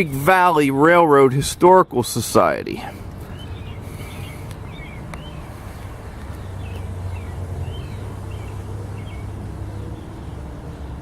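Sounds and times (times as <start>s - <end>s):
small birds chirping: 2.9s - 11.0s.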